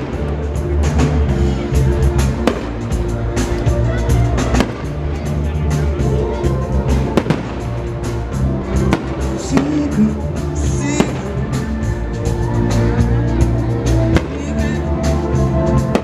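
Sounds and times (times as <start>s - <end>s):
loud music with bass line: 0.0s - 16.0s
fireworks popping and banging: 2.3s - 3.6s, 4.4s - 5.2s, 7.0s - 7.8s, 8.8s - 10.0s, 14.1s - 14.7s.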